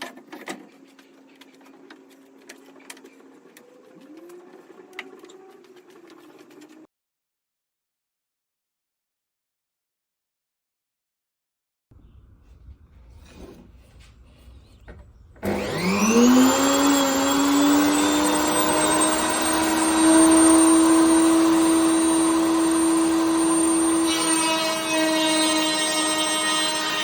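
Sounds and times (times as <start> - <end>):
electric router whining: 0.5 - 6.8, 12.2 - 27.0.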